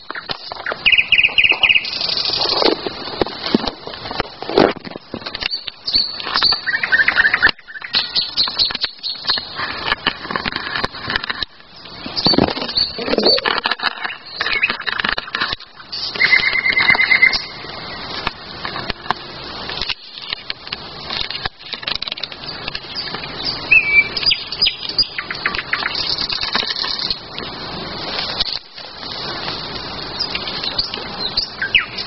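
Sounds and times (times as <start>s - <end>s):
birds singing: 0.0s - 2.7s, 4.9s - 9.6s, 11.7s - 15.3s, 15.9s - 18.2s, 22.3s - 27.3s, 30.0s - 32.0s
sharp crackles and clicks: 0.0s - 32.0s.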